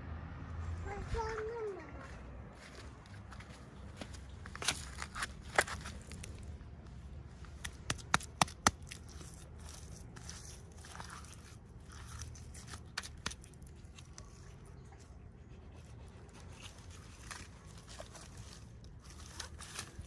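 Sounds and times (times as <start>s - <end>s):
packaging rustling and crinkling: 16.6s - 20.0s.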